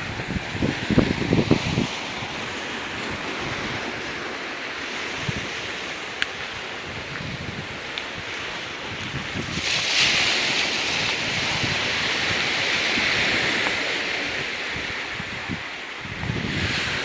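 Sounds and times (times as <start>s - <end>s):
ocean surf on rocky shore: 0.0s - 17.0s
wind buffeting microphone: 0.0s - 17.0s.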